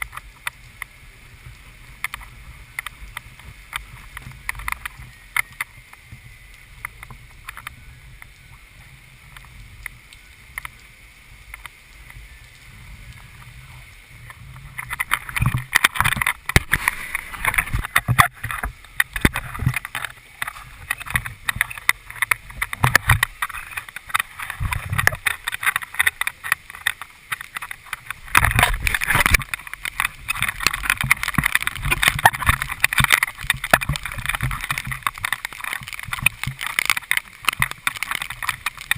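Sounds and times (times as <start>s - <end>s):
rough water splashing against boat: 13.2s - 38.9s.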